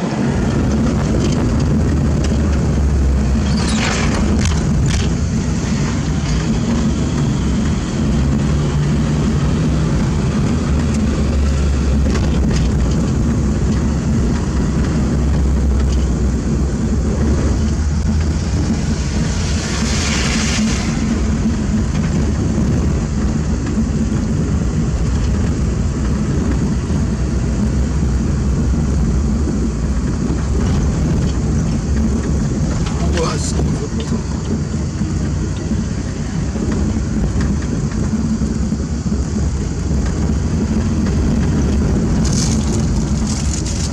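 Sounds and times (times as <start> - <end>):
heavy diesel engine running: 0.0 - 43.9.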